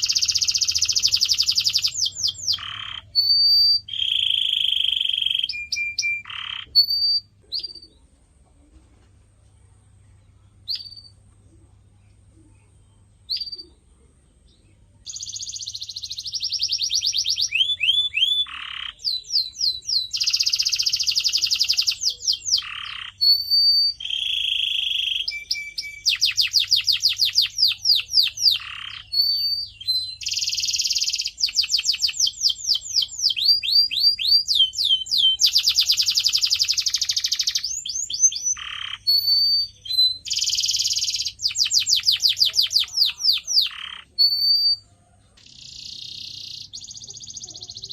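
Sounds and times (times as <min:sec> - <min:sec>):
canary singing: 0:00.0 - 0:08.5, 0:10.1 - 0:11.6, 0:12.4 - 0:47.9.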